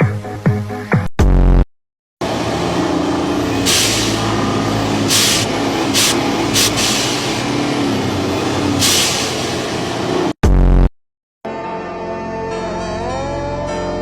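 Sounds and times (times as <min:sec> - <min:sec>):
truck engine running: 0:02.2 - 0:10.4
air hiss bursts: 0:03.4 - 0:10.0.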